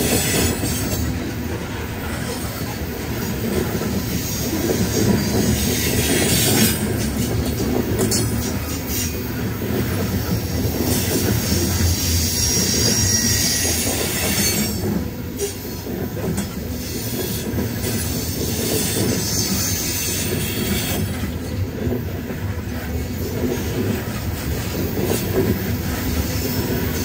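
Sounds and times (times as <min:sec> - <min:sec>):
freight cars rumbling on rails: 0:00.0 - 0:27.0
high wheel squeal: 0:11.0 - 0:14.9.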